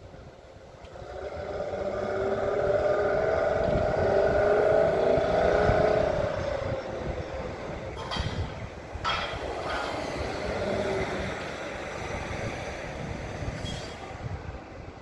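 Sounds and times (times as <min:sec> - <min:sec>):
engine hum: 0:00.0 - 0:15.0.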